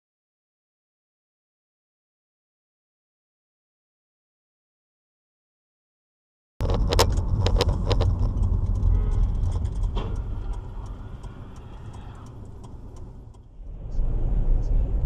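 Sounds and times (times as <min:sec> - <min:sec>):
car road and engine rumble: 0:06.6 - 0:15.0.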